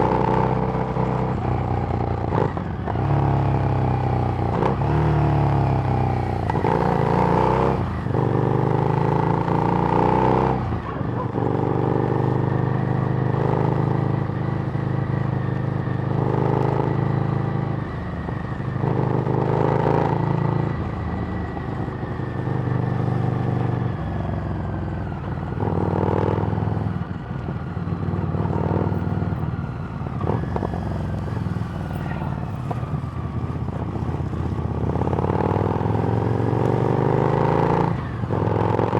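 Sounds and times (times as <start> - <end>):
motorcycle engine revving: 25.0 - 38.9.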